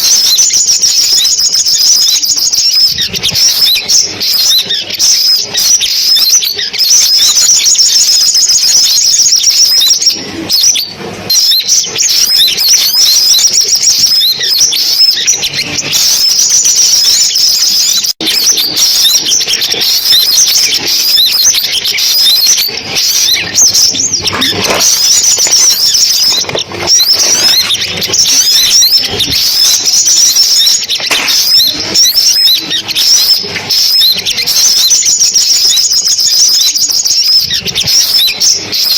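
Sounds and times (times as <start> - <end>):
sunbird song chirps and trills: 0.0 - 38.9.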